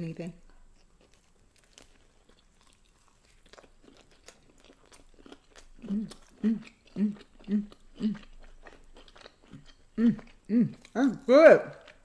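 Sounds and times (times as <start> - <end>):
person chewing bread: 0.5 - 12.0
person humming mm: 5.8 - 8.3, 10.0 - 11.8.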